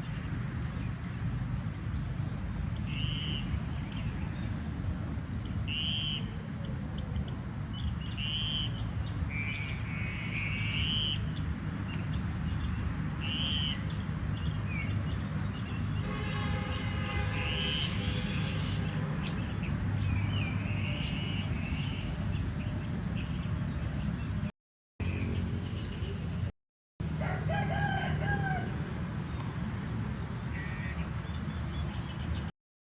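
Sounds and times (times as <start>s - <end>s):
birds chirping: 5.4s - 26.5s.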